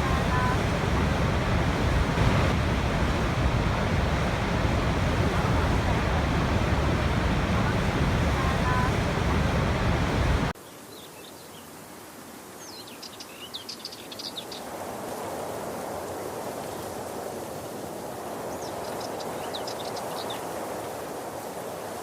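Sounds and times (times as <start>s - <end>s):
loud rushing noise: 0.0s - 10.5s
falling water rushing: 0.0s - 10.6s.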